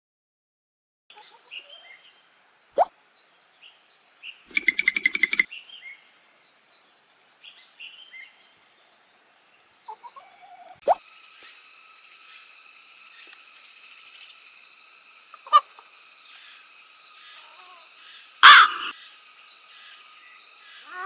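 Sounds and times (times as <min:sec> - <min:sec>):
small birds chirping: 0:01.1 - 0:21.0
bird chattering trill: 0:04.5 - 0:05.5, 0:18.4 - 0:18.9.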